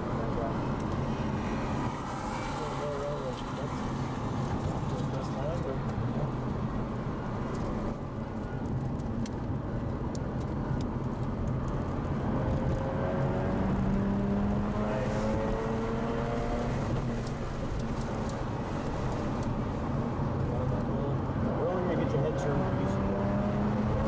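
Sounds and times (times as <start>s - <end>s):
road and wind noise: 0.0s - 24.0s
rotary engine accelerating: 12.3s - 17.5s, 21.9s - 24.0s.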